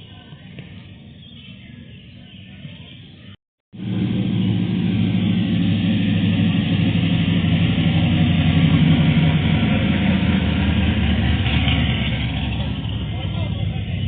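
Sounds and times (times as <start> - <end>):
car engine idling: 3.8 - 14.0.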